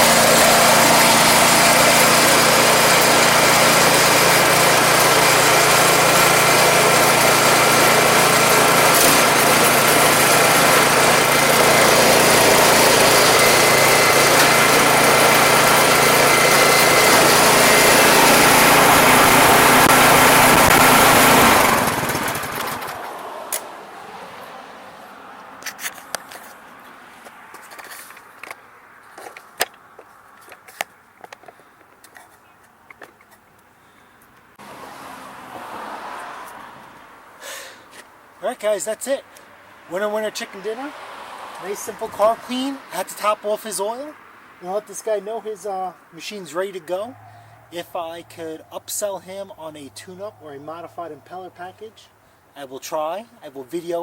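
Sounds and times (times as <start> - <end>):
snowblower engine running: 0.0 - 23.6
engine winding down: 0.0 - 23.7.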